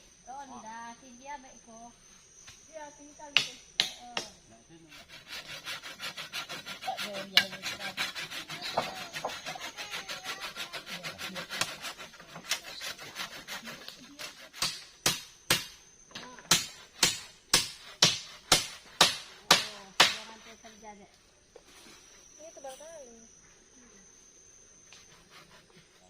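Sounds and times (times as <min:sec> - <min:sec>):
hand saw cutting wood: 0:04.9 - 0:14.9.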